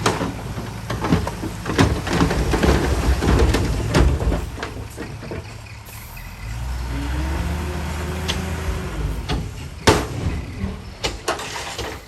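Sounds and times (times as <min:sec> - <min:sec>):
diesel engine rumbling: 0:00.0 - 0:12.0
loud metallic clank: 0:09.2 - 0:12.0.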